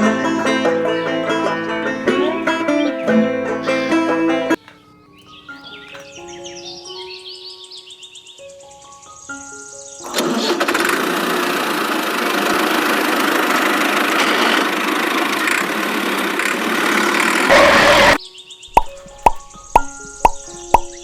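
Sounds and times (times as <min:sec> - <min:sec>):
engine starting and running: 0:10.2 - 0:18.2.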